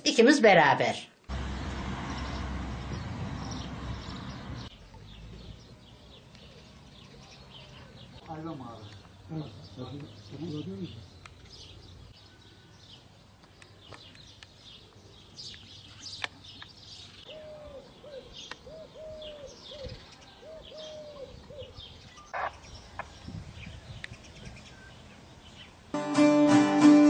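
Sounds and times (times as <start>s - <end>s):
birds chirping: 0.0s - 26.0s
bird cooing: 17.3s - 21.9s.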